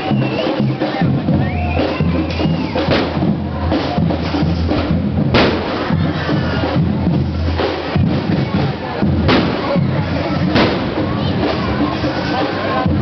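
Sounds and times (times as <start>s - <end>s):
procession drums beating: 0.0s - 13.0s
sharp crack: 2.4s - 3.3s, 4.8s - 5.9s, 9.2s - 9.8s, 10.5s - 11.7s.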